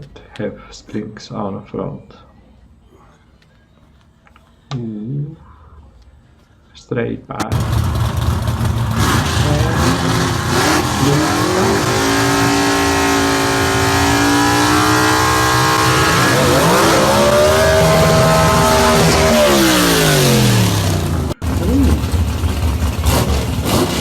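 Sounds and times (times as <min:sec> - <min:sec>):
drag car engine revving: 0:07.4 - 0:24.0
loud exhaust rasp: 0:07.5 - 0:24.0.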